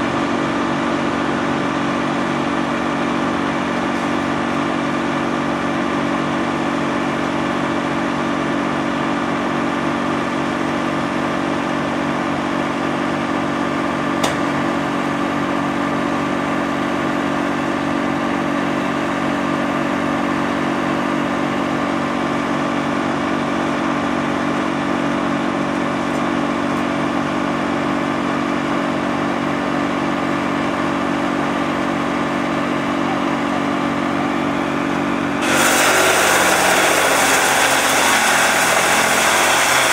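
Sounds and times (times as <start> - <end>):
wood chipper running: 0.0 - 39.9.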